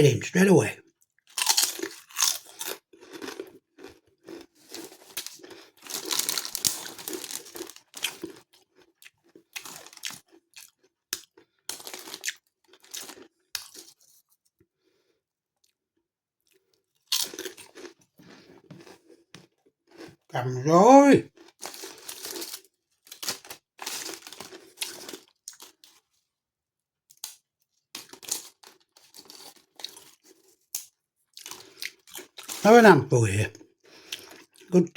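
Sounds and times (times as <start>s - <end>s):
crisps being crunched and chewed: 1.0s - 14.2s, 16.4s - 19.1s, 21.3s - 26.0s, 27.1s - 32.6s, 34.0s - 34.7s.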